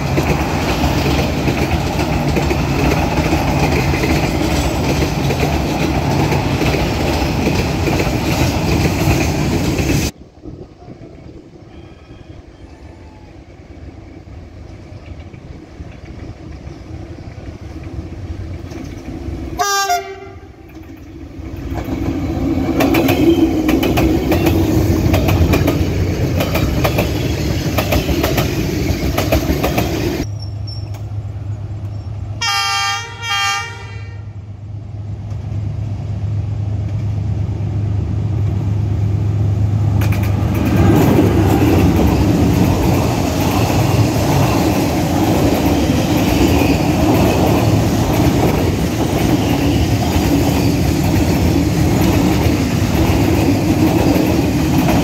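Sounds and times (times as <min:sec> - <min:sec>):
train wheels on rails: 0:00.0 - 0:34.0, 0:34.6 - 0:55.0
diesel train engine: 0:00.0 - 0:55.0
train horn blast: 0:19.6 - 0:20.6, 0:32.4 - 0:34.4.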